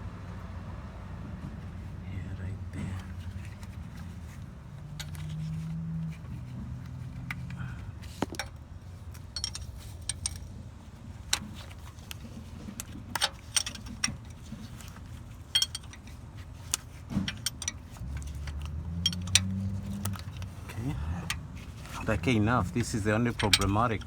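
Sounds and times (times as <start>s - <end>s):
wrench and socket metallic clicks: 15.6s - 20.6s, 22.9s - 24.0s.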